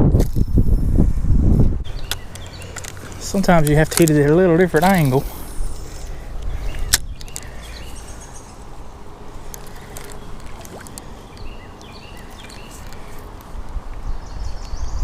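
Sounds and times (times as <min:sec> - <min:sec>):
birds chirping: 0:01.8 - 0:15.0.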